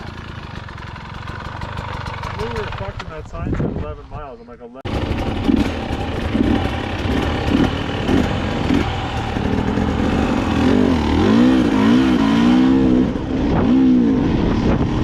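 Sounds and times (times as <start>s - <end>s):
wind noise: 3.1s - 4.3s, 12.9s - 15.0s
dirt bike engine revving: 4.9s - 15.0s.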